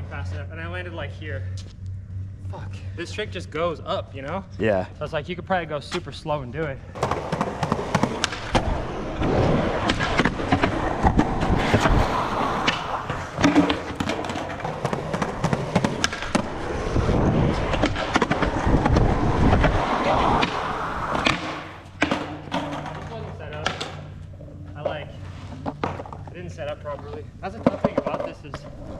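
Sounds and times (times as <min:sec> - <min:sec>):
skateboard wooden clacks: 0:07.0 - 0:16.8, 0:17.6 - 0:24.0, 0:27.6 - 0:28.9
skateboard rolling on pavement: 0:07.0 - 0:24.5, 0:25.1 - 0:28.9.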